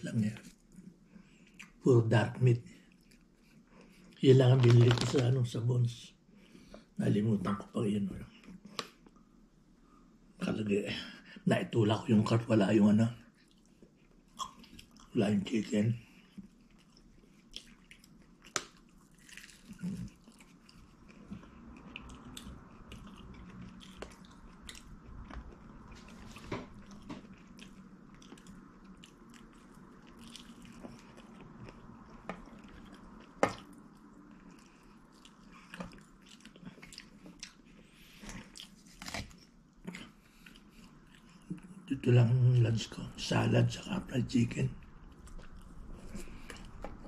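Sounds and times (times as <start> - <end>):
food crunching: 16.0 - 41.8
person biting and chewing: 16.8 - 41.5.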